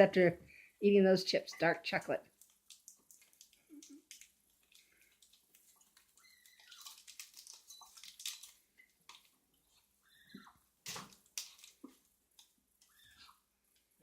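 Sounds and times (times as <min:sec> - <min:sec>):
wrapper crinkling and rustling: 0:02.3 - 0:09.8, 0:10.8 - 0:12.5.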